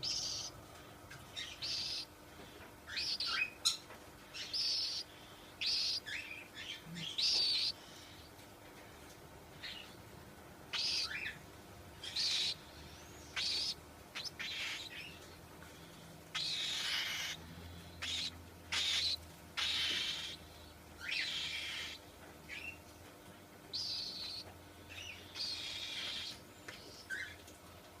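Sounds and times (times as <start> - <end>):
cockatiel screeching and chirping: 13.4 - 15.1, 16.3 - 17.4, 18.0 - 20.4, 21.0 - 22.7.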